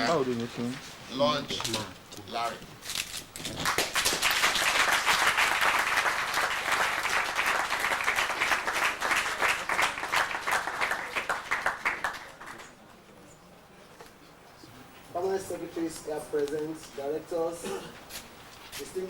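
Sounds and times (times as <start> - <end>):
audience applauding: 3.6 - 12.8.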